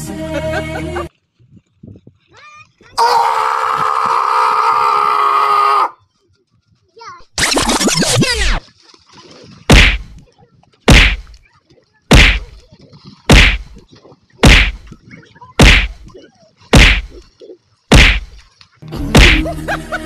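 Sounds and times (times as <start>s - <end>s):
punch whacks: 9.7s - 10.1s, 10.9s - 11.3s, 12.1s - 12.5s, 13.3s - 13.7s, 14.4s - 14.8s, 15.6s - 16.0s, 16.7s - 17.2s, 17.9s - 18.3s, 19.2s - 19.5s.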